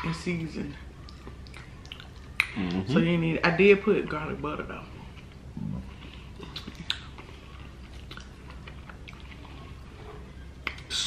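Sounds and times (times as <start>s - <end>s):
people chewing food: 0.8s - 3.0s, 4.9s - 11.0s.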